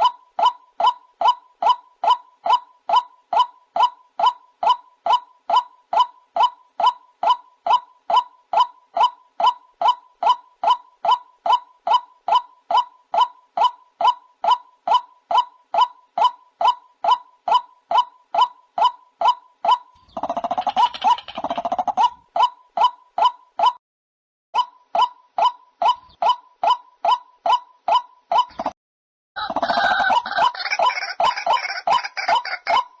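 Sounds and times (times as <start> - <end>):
waterhen repeated calls: 0.0 - 23.8, 29.4 - 33.0.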